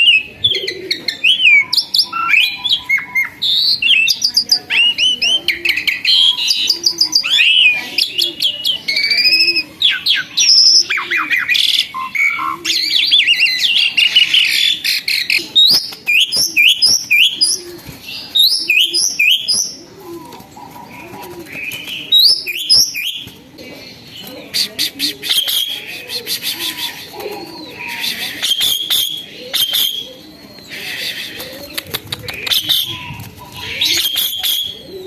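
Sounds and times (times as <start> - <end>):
starling singing: 0.0 - 35.0.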